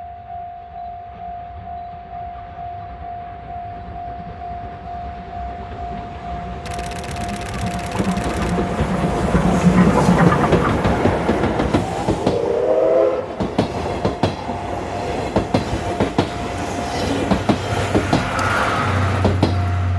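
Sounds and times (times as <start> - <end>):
train wheels clicking over rail joints: 5.8 - 19.9.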